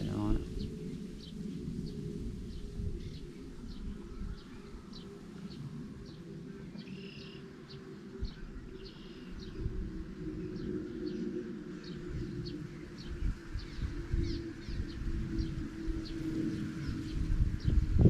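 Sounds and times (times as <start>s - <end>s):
bird chirping: 0.0s - 9.7s.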